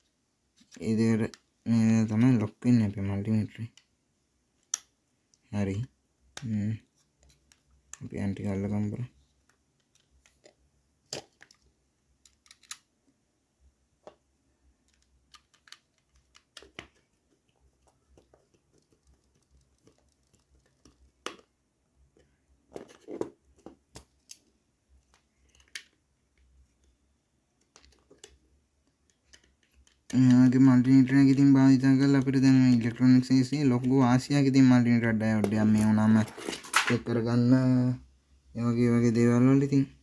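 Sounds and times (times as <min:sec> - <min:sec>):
plastic parts clicking: 0:09.4 - 0:12.9, 0:14.8 - 0:26.9, 0:27.6 - 0:30.2, 0:35.4 - 0:37.1.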